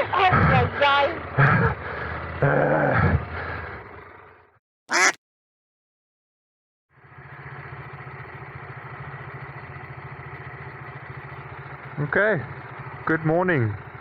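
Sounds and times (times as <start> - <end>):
motorcycle engine idling: 7.0 - 13.0.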